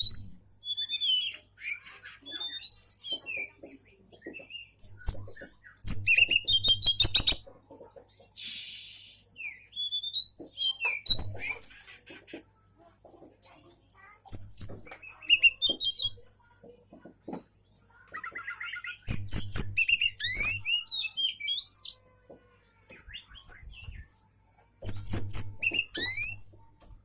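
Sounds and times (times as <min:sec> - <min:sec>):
magpie-robin singing trills and whistles: 0:00.0 - 0:07.5, 0:09.0 - 0:11.9, 0:14.3 - 0:16.8, 0:18.1 - 0:22.2, 0:22.9 - 0:26.6.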